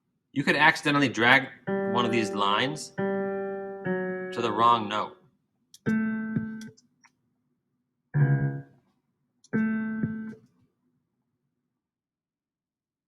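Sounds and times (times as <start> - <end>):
piano notes: 1.3 - 5.2, 5.8 - 6.7, 8.2 - 8.7, 9.6 - 10.4.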